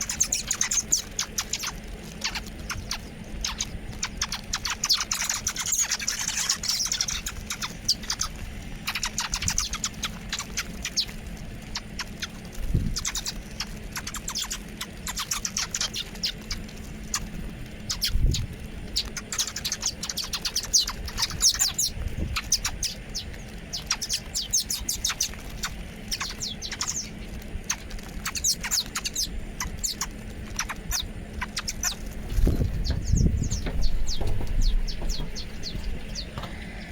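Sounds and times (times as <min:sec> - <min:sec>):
faint low hum: 0:00.0 - 0:36.9
small birds chirping: 0:00.0 - 0:36.9
low thumps: 0:32.1 - 0:36.7.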